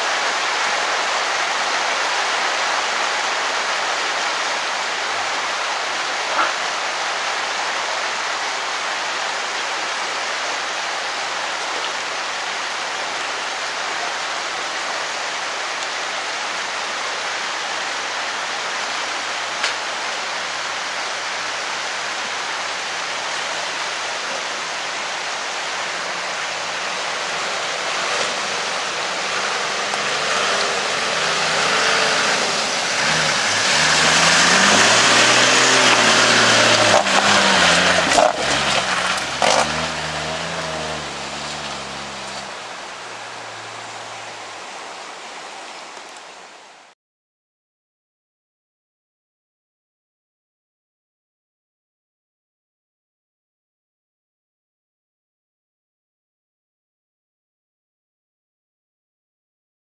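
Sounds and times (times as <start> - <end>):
off-road vehicle engine: 0.0 - 46.0
steady rushing noise: 0.0 - 46.8.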